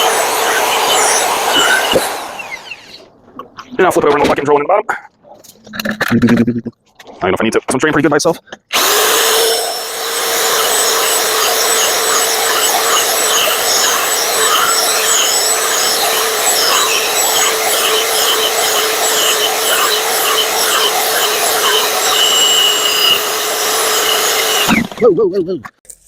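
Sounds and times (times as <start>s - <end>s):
electric drill whining under load: 0.0s - 3.1s, 8.7s - 25.0s.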